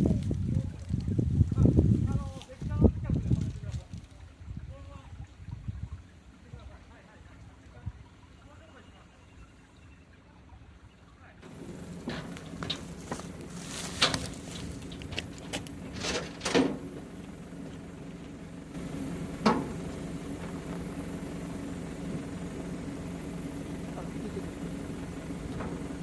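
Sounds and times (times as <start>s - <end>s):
vehicle engine idling: 6.0s - 26.0s
clunks and knocks: 11.5s - 20.8s, 25.4s - 26.0s.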